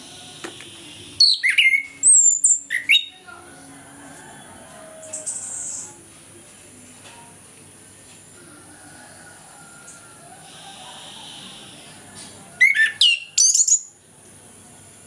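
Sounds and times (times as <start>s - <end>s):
thrush singing whistled notes: 0.0s - 3.2s, 12.6s - 13.9s.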